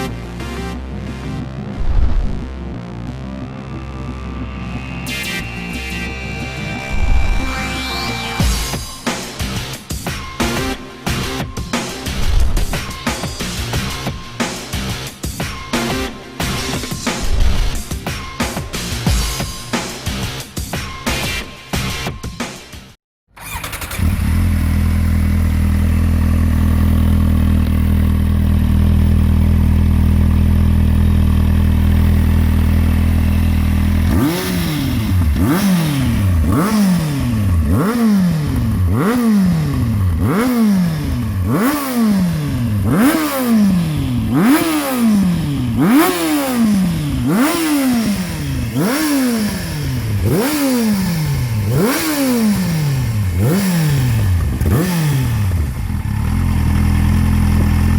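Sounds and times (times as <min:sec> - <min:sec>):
motorcycle engine revving: 0:01.3 - 0:22.1, 0:23.4 - 0:57.9
motorcycle engine idling: 0:23.4 - 0:57.9.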